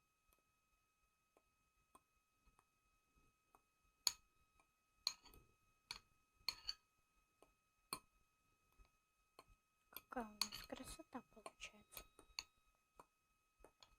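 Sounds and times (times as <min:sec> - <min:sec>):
fork clinking against plate: 0:06.5 - 0:06.8, 0:10.4 - 0:10.7.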